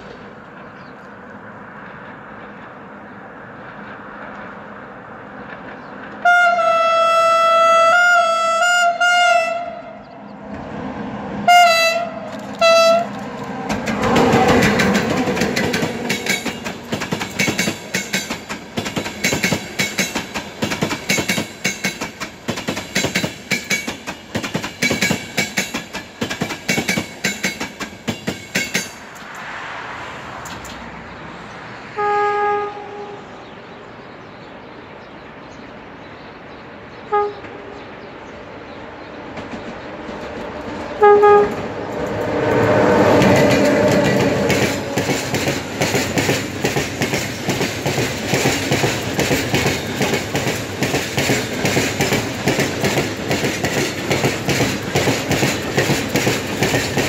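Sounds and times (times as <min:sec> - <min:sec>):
train rumbling: 0:00.0 - 0:57.0
train horn blasts: 0:06.2 - 0:10.1, 0:11.4 - 0:13.3, 0:31.9 - 0:33.4, 0:37.1 - 0:37.8, 0:41.0 - 0:45.4
wheels clicking over rail joints: 0:12.0 - 0:29.5, 0:39.3 - 0:57.0.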